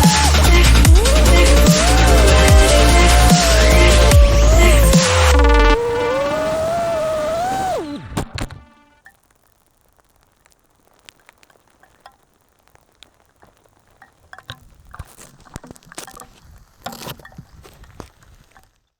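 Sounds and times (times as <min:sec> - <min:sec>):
low hiss: 0:00.0 - 0:18.9
faint taps and clicks: 0:13.0 - 0:18.7.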